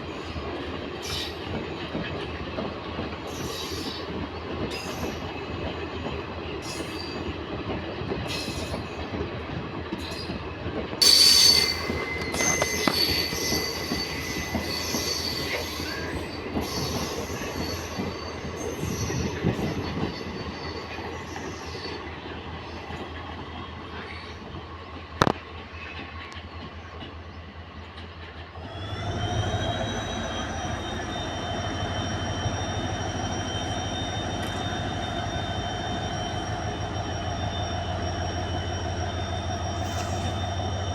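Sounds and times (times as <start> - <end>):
train wheels rumbling on rails: 0.0 - 40.9
metallic wheel squeal: 11.0 - 22.8, 29.2 - 40.9.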